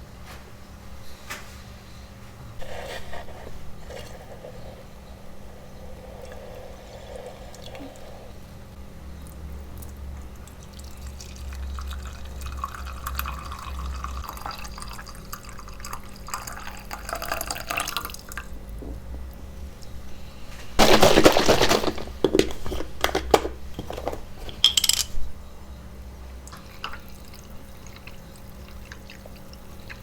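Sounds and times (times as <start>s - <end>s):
small clicks and clinks: 23.8s - 25.2s
water dripping and trickling: 26.5s - 30.0s.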